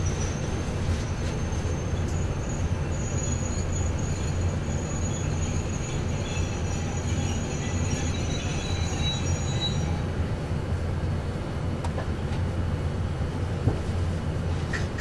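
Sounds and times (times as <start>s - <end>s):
high wheel squeal: 0.0s - 10.1s
low rumble of trains rolling: 0.0s - 15.0s.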